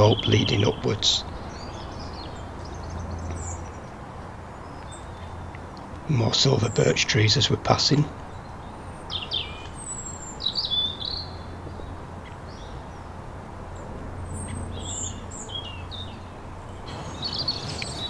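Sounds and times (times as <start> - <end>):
songbirds chirping and singing: 0.0 - 18.0.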